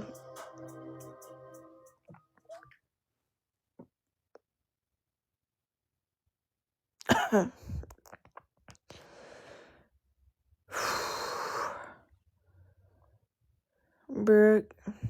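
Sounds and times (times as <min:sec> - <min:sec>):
soft breath: 0:08.9 - 0:09.9.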